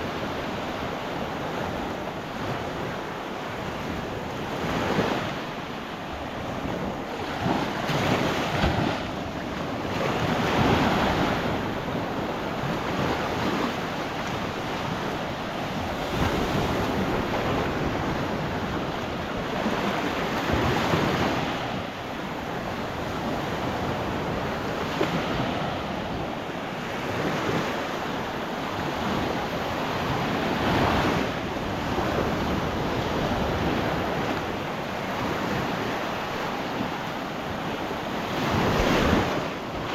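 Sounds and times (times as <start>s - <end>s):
waves rolling onto shore: 0.0s - 39.9s
wind buffeting microphone: 0.0s - 39.9s.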